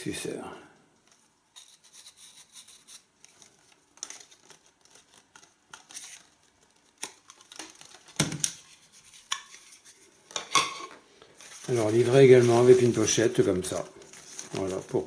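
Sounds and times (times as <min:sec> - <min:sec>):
plastic rustling and clicks: 0:03.2 - 0:09.7, 0:11.4 - 0:15.0.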